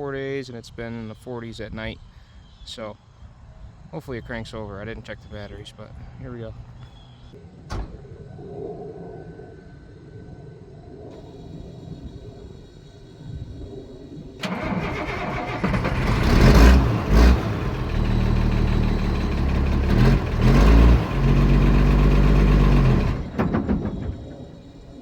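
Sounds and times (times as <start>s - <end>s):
diesel engine running and revving: 14.4s - 24.8s
starter motor cranking: 14.4s - 24.8s.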